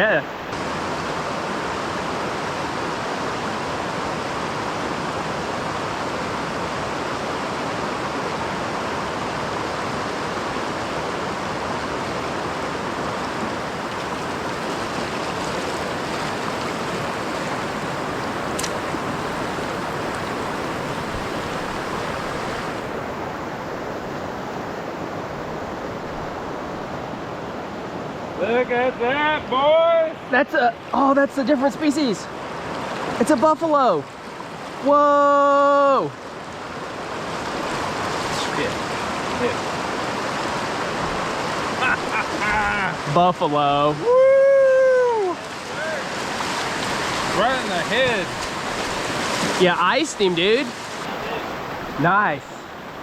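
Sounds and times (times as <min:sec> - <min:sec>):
water rushing: 0:00.0 - 0:53.0
faint click: 0:18.6 - 0:18.8.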